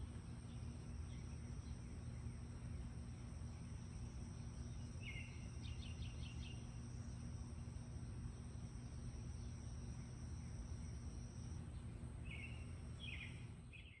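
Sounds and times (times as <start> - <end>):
small birds chirping: 0.0 - 7.2, 11.6 - 14.0.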